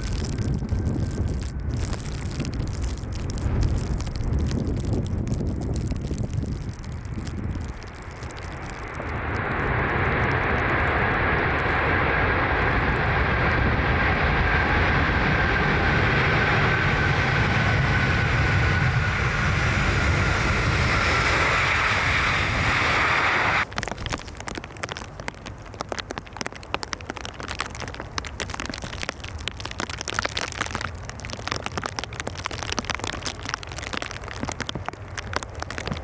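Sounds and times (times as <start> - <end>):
high whine falling in pitch: 0.0 - 23.6
jet engines roaring: 0.0 - 23.6.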